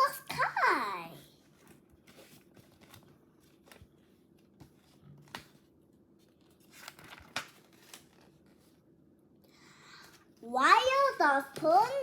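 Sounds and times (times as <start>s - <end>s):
paper book pages rustling: 1.4s - 8.9s.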